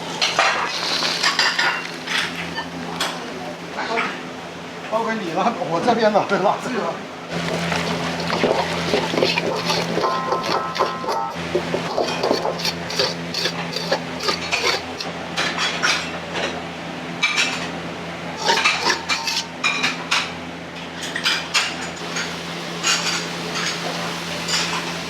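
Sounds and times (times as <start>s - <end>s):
pots and dishes clinking: 0.2s - 3.3s, 7.3s - 16.6s, 18.3s - 20.4s, 21.0s - 25.0s.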